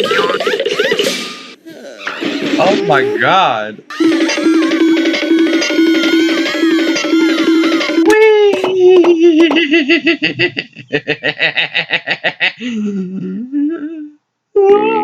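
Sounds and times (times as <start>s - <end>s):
rapid pulsing cartoon laughter: 4.0s - 8.0s, 9.3s - 12.6s.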